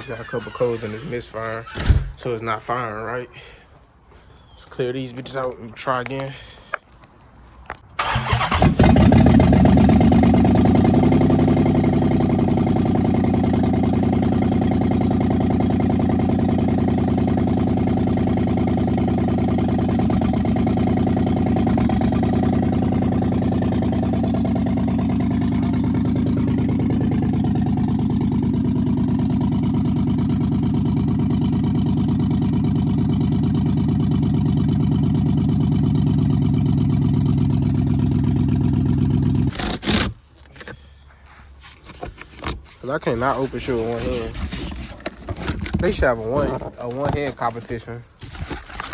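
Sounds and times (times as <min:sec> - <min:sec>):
car engine starting and idling: 0:00.0 - 0:02.4, 0:08.0 - 0:40.0
man talking: 0:00.0 - 0:03.6, 0:04.6 - 0:06.6, 0:42.8 - 0:44.5, 0:45.8 - 0:48.1.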